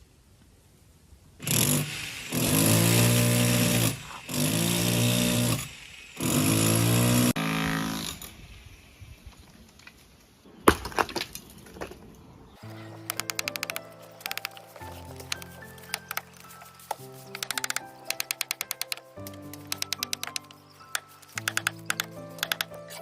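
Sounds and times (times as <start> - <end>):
drill motor winding down: 1.4 - 8.6
hammer drill boring into concrete: 1.4 - 8.6.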